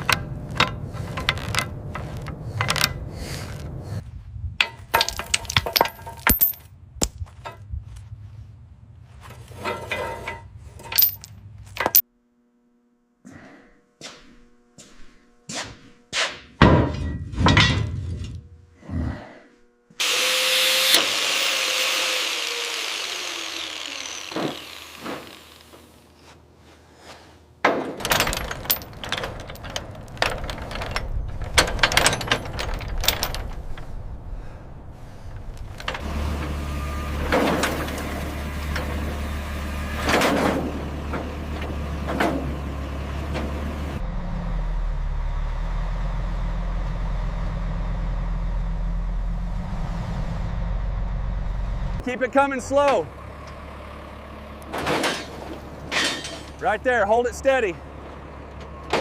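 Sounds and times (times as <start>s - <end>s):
metal chains clanking: 0.0s - 3.6s, 4.6s - 6.7s, 9.6s - 12.0s, 28.0s - 34.0s, 55.9s - 57.0s
vehicle engine humming: 0.0s - 9.6s, 28.0s - 59.0s.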